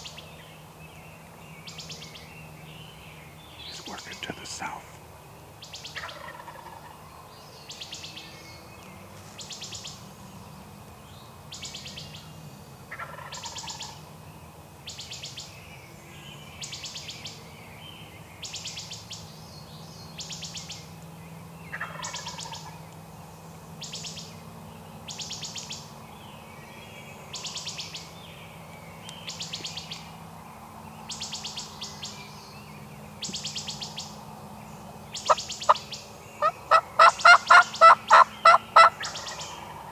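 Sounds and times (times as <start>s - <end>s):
distant turkey gobbles: 35.2s - 35.8s, 36.4s - 39.8s.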